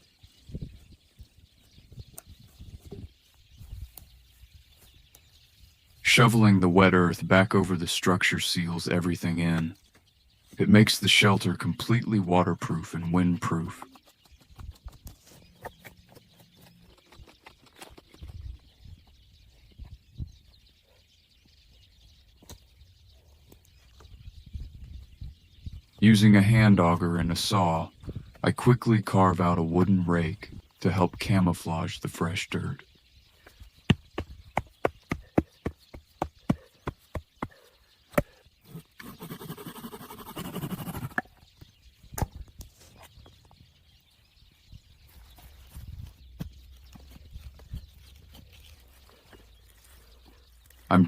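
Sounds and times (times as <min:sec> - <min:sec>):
sharp wooden knocks: 0:33.9 - 0:38.4
rasping wood scraping: 0:38.2 - 0:41.3.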